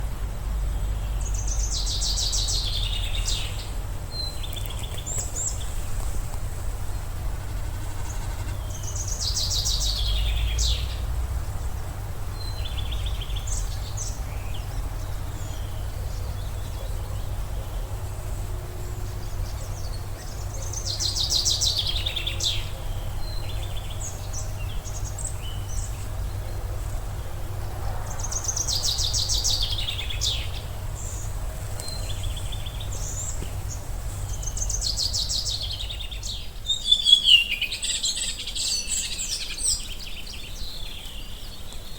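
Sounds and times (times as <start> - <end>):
low wind rumble: 0.0 - 36.8
songbird trilling: 4.2 - 11.7, 28.2 - 40.6
bird calls: 4.2 - 27.5.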